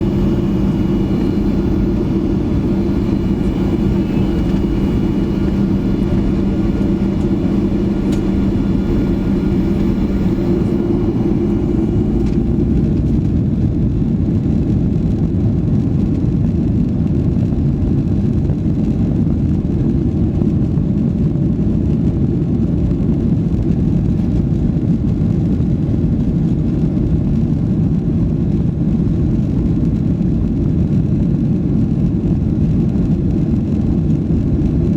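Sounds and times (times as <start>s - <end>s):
engine tonal hum: 0.0s - 14.1s
jet engines rumbling: 0.0s - 14.5s.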